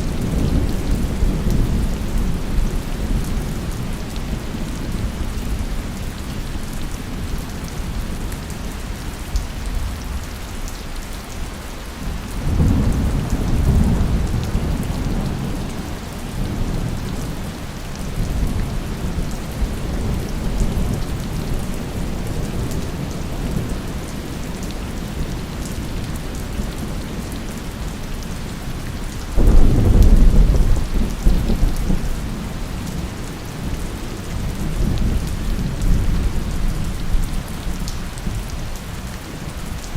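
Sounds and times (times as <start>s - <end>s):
heavy rain falling: 0.0s - 39.9s
rolling thunder: 29.4s - 37.6s.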